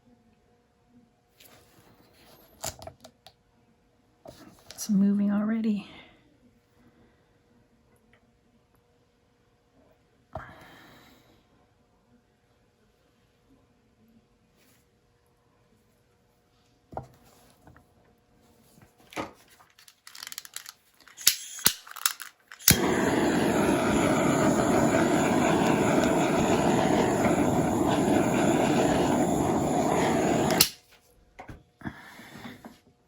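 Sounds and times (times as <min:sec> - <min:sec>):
handling clicks and knocks: 0:19.8 - 0:22.8
hair dryer running: 0:22.6 - 0:30.8.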